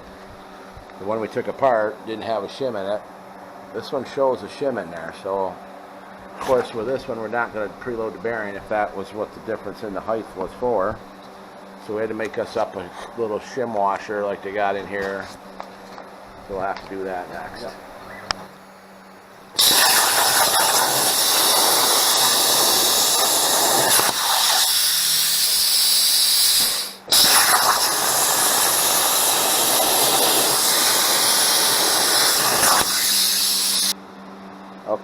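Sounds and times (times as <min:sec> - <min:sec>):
metalworking tool hissing on steel: 0:19.6 - 0:33.9.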